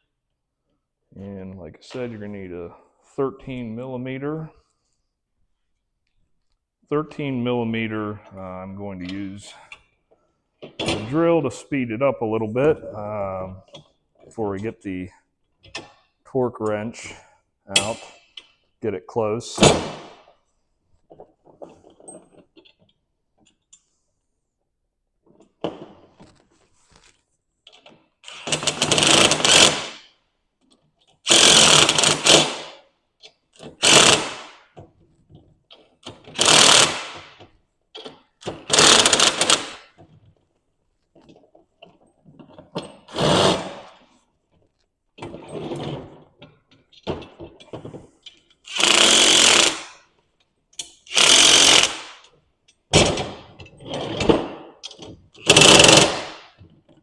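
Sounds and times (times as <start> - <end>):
cordless drill spinning nuts: 28.2 - 29.8, 31.3 - 32.6, 33.8 - 34.4, 36.3 - 37.1, 38.7 - 39.8, 43.1 - 43.7, 48.7 - 50.0, 51.1 - 52.2, 55.4 - 56.2.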